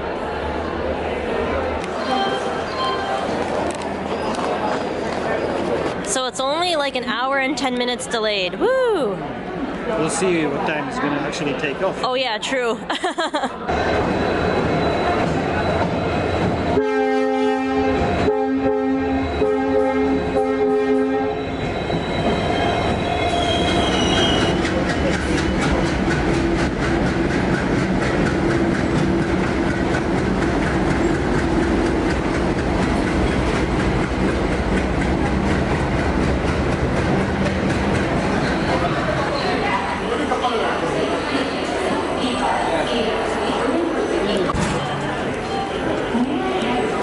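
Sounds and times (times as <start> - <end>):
train horn blasts: 16.7 - 24.5
wheel squeal: 21.3 - 26.2
train wheels clacking over rail joints: 23.6 - 39.1.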